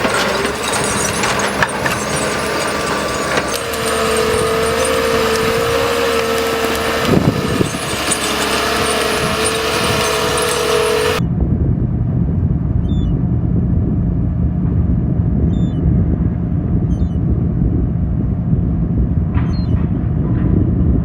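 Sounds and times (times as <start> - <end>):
heavy machinery whining: 0.0 - 11.2.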